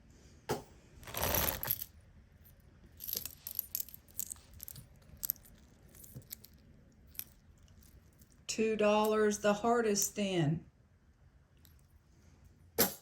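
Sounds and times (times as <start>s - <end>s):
chain and metal pieces jingling: 1.0s - 1.9s, 2.9s - 8.4s
small light metal clinks: 2.5s - 8.4s.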